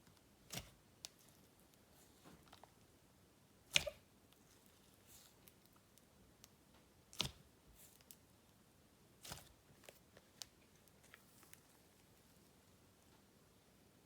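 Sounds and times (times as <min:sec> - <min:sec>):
sticky slime clicks: 0:03.7 - 0:04.0.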